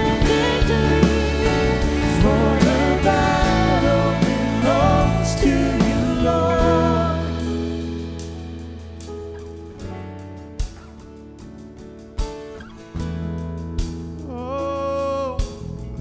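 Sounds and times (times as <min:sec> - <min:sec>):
worship band playing: 0:00.0 - 0:09.1
drum hits: 0:00.0 - 0:09.3.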